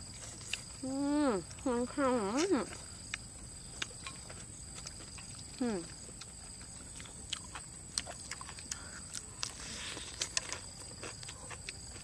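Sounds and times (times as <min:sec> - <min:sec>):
crunching fried chicken: 0:02.4 - 0:12.0.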